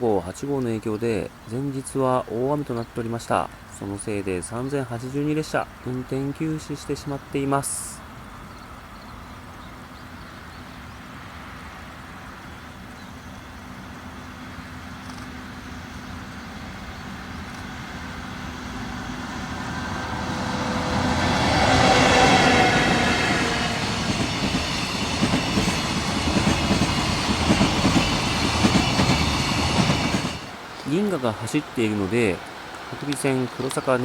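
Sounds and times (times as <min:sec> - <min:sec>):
electric locomotive passing: 0:01.4 - 0:34.0
wheels clacking over rail joints: 0:16.8 - 0:30.9.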